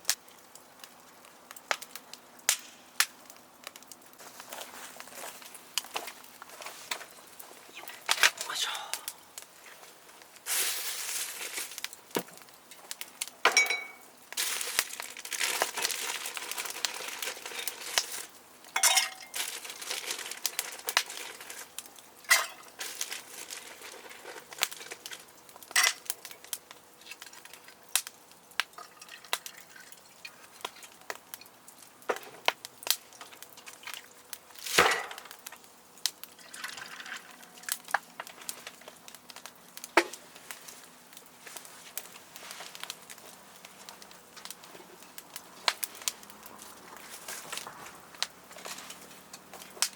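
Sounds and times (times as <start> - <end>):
rustling and crinkling: 3.4 - 8.5, 9.4 - 27.9, 36.5 - 49.9
cooking gear clinking: 13.5 - 18.2, 18.8 - 21.6, 22.3 - 25.0.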